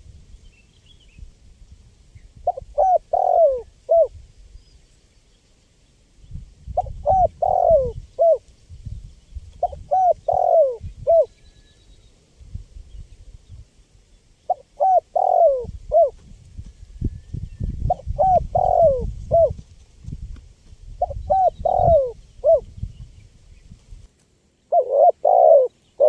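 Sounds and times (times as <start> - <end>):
dove cooing: 2.4 - 4.2, 6.8 - 8.5, 9.6 - 11.4, 14.5 - 16.2, 17.8 - 19.6, 21.0 - 22.7, 24.7 - 25.8.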